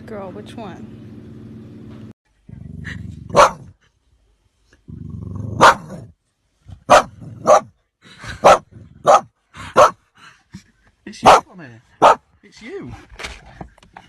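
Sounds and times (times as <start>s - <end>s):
dog barking: 3.3s - 3.7s, 5.6s - 6.1s, 6.8s - 7.8s, 8.4s - 10.0s, 11.2s - 12.3s.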